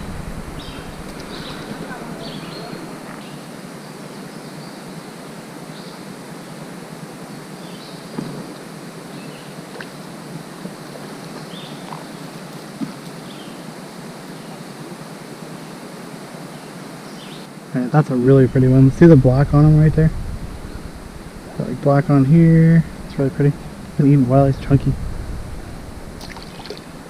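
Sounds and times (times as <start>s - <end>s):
creek flowing: 0.0s - 4.3s, 17.5s - 27.0s.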